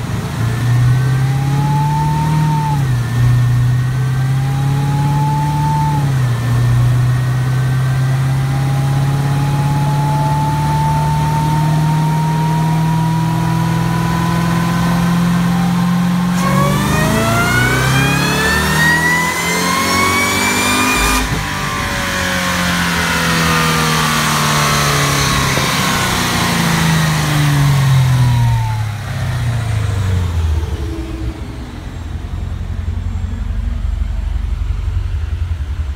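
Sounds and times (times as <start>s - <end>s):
car engine revving with whine: 0.0s - 35.9s.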